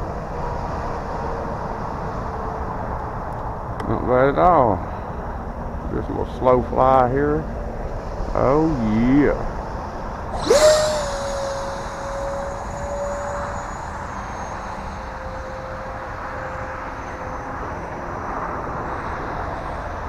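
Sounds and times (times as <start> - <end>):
electric fan motor whine: 10.3 - 19.9
rush of air: 10.4 - 16.8.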